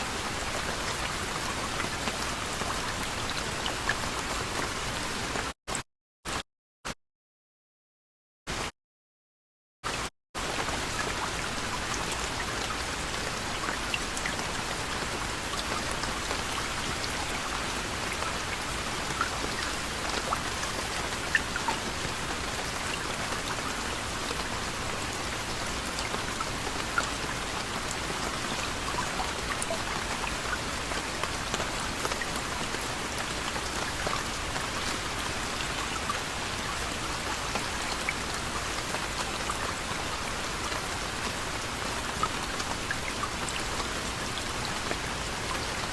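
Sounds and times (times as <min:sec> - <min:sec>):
soft rain hiss: 0:10.4 - 0:45.9
raindrops ticking: 0:13.6 - 0:36.2.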